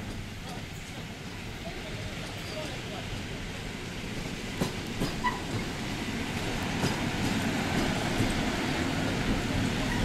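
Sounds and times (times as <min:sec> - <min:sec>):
train rumbling past: 0:00.0 - 0:10.0.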